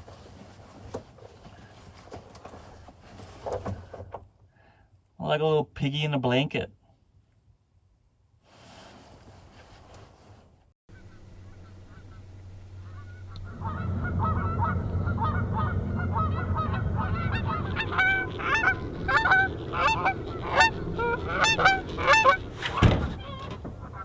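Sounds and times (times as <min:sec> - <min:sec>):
geese honking: 0:10.9 - 0:24.0
low steady rumble: 0:10.9 - 0:24.0.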